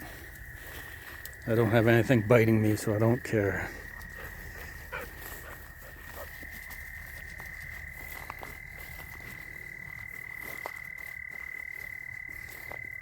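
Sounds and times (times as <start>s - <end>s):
faint ticks: 0.3s - 1.5s.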